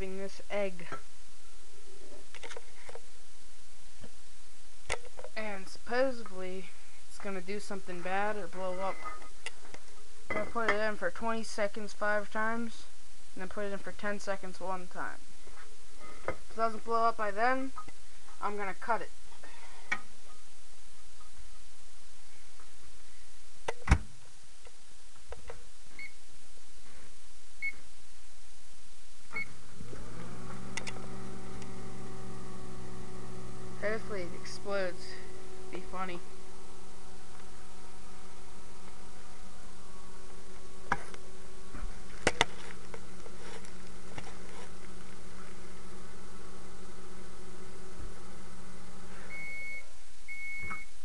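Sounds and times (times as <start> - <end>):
microwave oven humming: 29.2 - 51.0.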